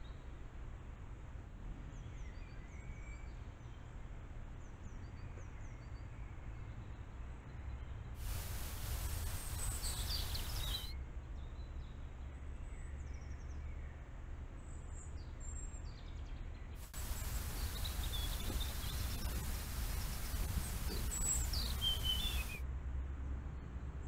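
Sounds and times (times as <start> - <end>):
low outdoor rumble: 8.2 - 10.9, 16.8 - 22.6
songbirds chirping and singing: 8.3 - 10.9, 16.9 - 22.6.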